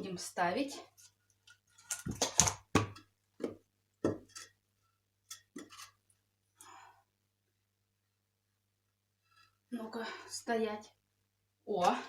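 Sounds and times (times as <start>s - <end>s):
objects knocking and clattering: 1.8s - 4.6s, 5.2s - 6.0s.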